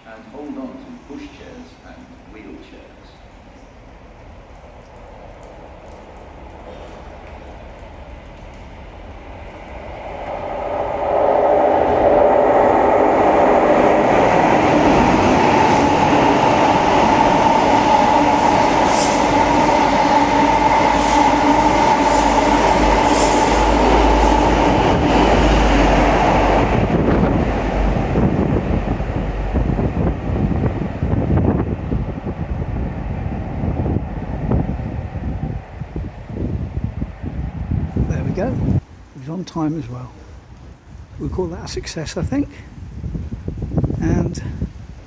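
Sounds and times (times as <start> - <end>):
wind rumble: 0.0 - 39.2, 40.0 - 45.0
train wheels clicking: 0.4 - 29.7
diesel train engine whine: 3.2 - 38.0.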